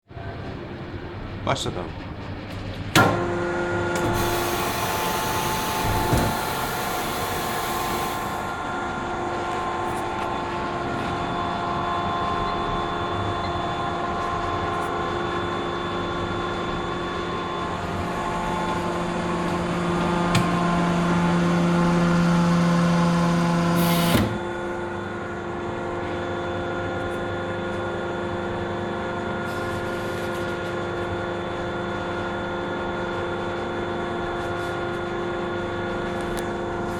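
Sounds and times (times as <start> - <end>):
press machine humming: 2.8 - 29.3.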